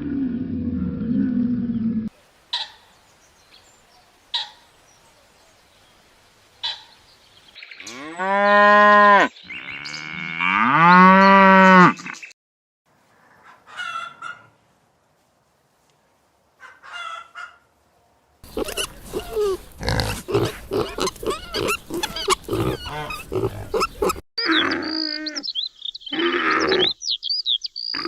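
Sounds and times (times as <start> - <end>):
cow mooing: 7.8 - 12.1.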